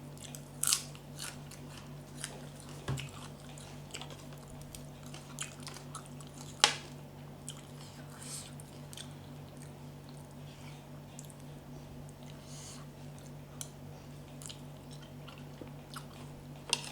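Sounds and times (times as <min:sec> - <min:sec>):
person chewing crunchy food: 0:00.0 - 0:16.9.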